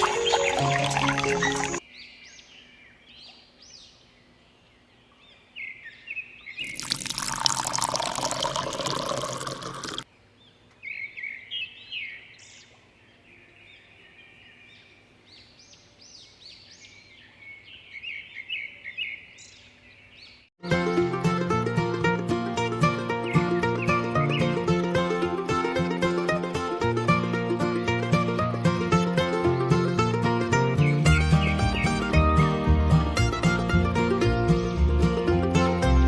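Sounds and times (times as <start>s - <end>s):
small birds chirping: 0.0s - 7.0s, 10.1s - 20.5s, 23.1s - 24.8s, 30.6s - 32.2s.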